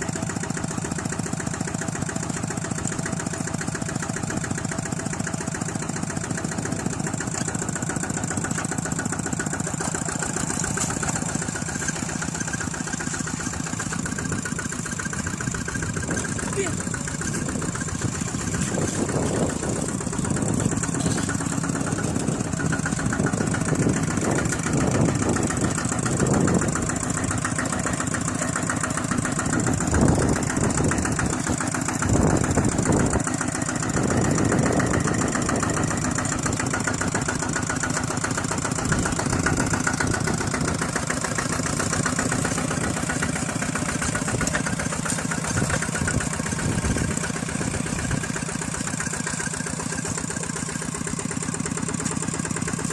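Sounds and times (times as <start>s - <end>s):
engine chugging: 0.0s - 52.9s.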